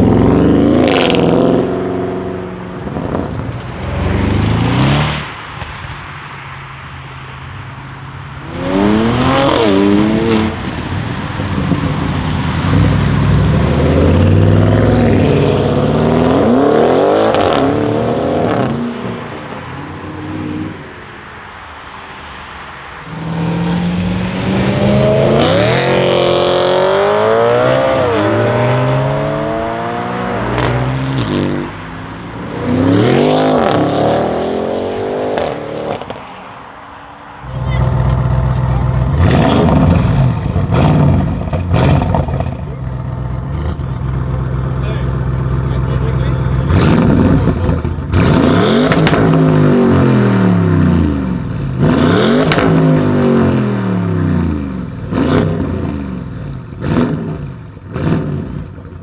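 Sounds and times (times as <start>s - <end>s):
car engine accelerating hard: 0.0s - 5.6s, 8.4s - 20.9s, 23.0s - 36.2s, 37.4s - 59.0s
exhaust cracks: 0.0s - 7.0s, 37.4s - 59.0s.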